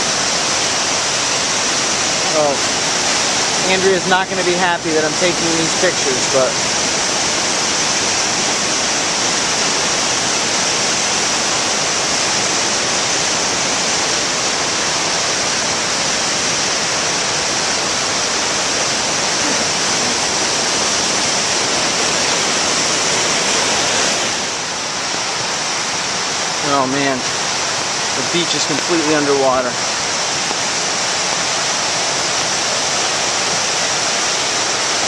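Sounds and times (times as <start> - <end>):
flooded river rushing: 0.0 - 35.0.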